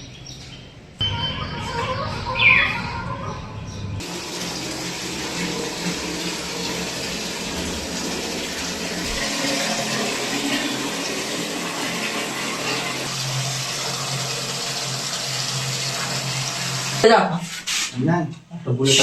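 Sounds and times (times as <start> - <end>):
running water rushing: 4.0 - 17.1.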